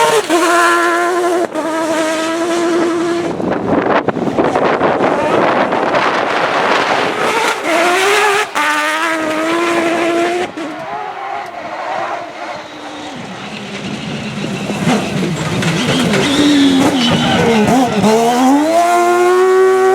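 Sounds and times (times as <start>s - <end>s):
rally car engine at full throttle: 0.0s - 19.9s.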